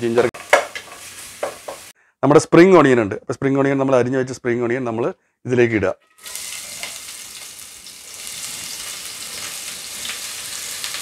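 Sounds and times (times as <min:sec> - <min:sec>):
onions sizzling in hot oil: 0:00.0 - 0:01.9, 0:06.2 - 0:11.0.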